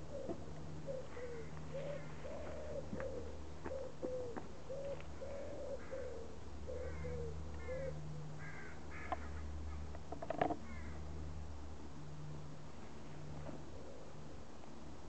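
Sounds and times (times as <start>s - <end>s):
higher bird calls: 0.0s - 9.9s
birds calling low notes: 0.0s - 11.0s
steady low hum: 0.0s - 15.0s.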